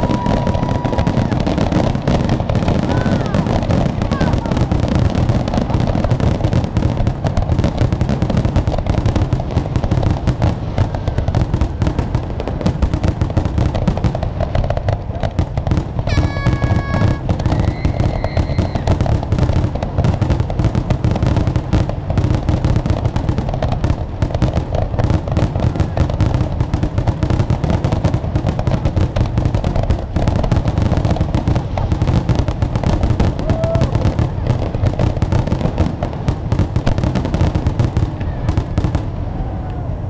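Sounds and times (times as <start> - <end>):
fireworks bursting and crackling: 0.0 - 40.0
whistle-like tone: 16.1 - 18.9.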